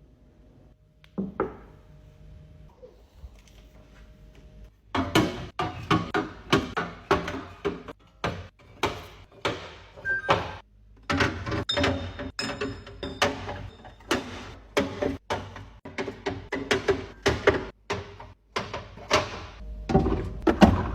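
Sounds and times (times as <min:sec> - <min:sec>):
containers clacking and knocking: 0:05.0 - 0:20.9.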